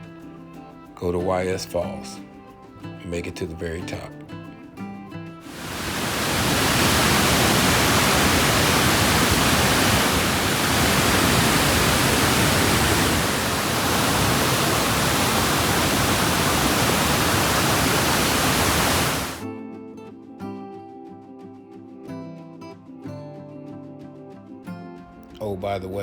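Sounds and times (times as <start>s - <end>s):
waterfall rushing: 5.5s - 19.4s.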